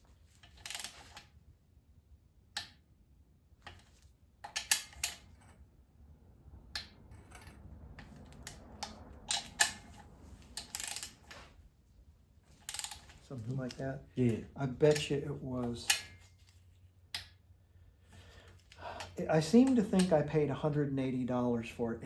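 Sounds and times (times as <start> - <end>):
wrench ratcheting: 8.3 - 11.2.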